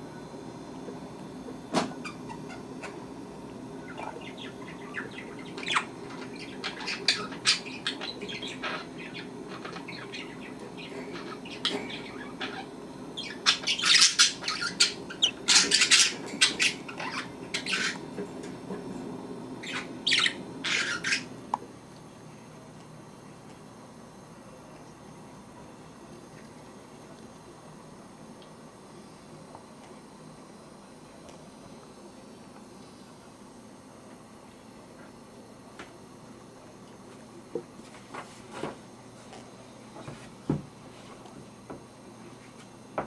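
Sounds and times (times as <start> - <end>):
budgerigars chirping: 3.8 - 18.0, 19.6 - 21.3.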